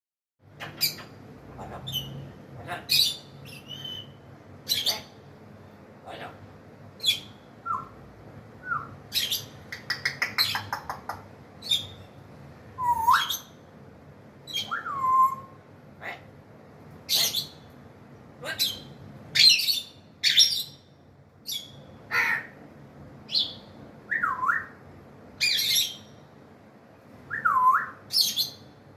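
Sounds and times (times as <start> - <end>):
parrot squawks: 0.6 - 5.2, 17.1 - 17.6, 21.5 - 22.6.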